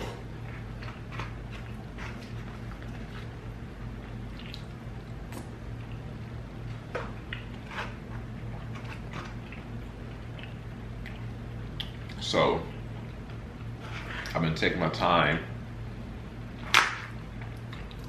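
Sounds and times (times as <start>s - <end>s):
steady low hum: 0.0s - 18.0s
chewing with wet mouth smacks: 3.9s - 6.1s, 7.2s - 7.6s, 8.4s - 12.2s.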